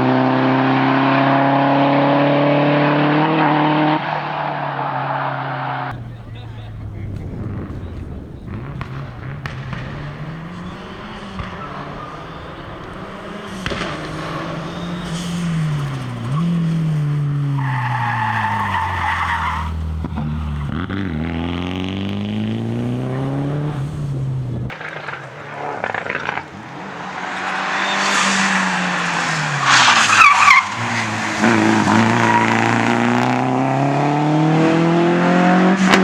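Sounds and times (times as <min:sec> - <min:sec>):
rally car engine revving: 0:00.0 - 0:36.0
tyres squealing: 0:05.9 - 0:21.3.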